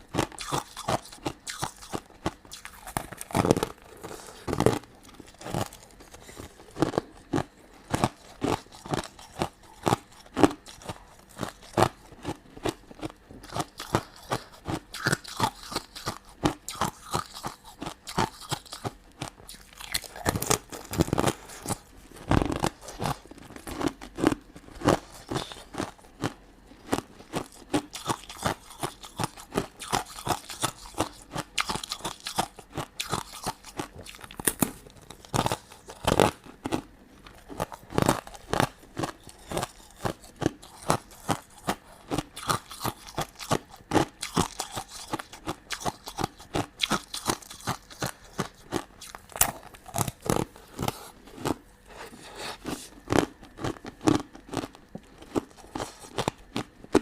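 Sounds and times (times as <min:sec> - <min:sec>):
chewing crunchy sweets: 0:00.0 - 0:57.0.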